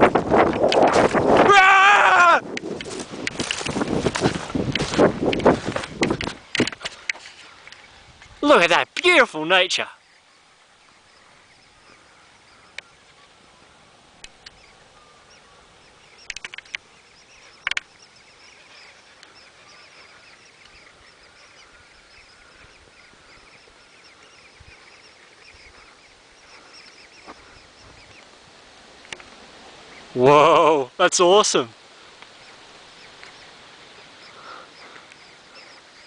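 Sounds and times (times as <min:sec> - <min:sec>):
flock of birds calling: 0:00.0 - 0:36.0
sharp clicks: 0:16.2 - 0:16.8.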